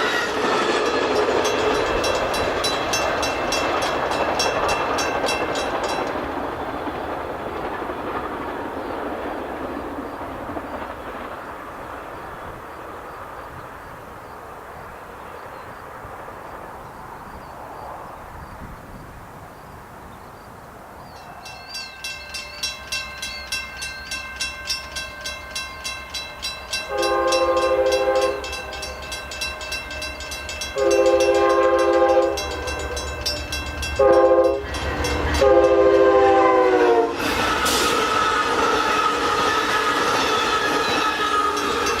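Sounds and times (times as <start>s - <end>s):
locomotive horn blasts: 0.0s - 0.8s, 26.7s - 42.0s
crossing bell ringing: 0.0s - 7.0s, 21.1s - 42.0s
train rumble: 0.0s - 42.0s.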